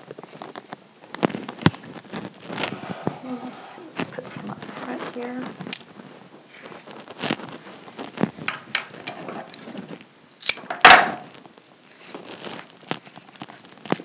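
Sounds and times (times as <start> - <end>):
hands arranging flower stems: 0.0 - 14.0.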